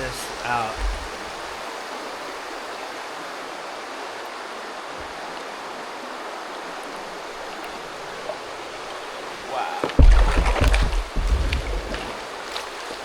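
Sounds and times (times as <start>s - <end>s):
running water: 0.0s - 13.0s
faint low thump: 0.7s - 1.4s, 9.9s - 12.1s.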